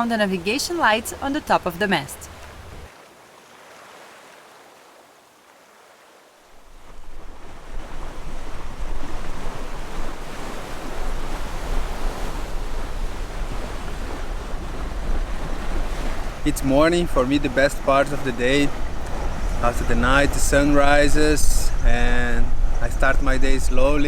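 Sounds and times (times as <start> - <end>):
sea wash: 0.0 - 24.0
wind buffeting microphone: 6.7 - 24.0.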